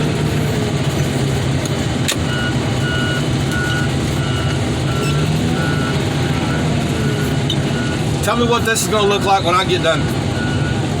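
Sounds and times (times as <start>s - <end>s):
diesel engine running: 0.0s - 11.0s
reversing alarm beeping: 2.2s - 8.7s, 10.3s - 10.8s.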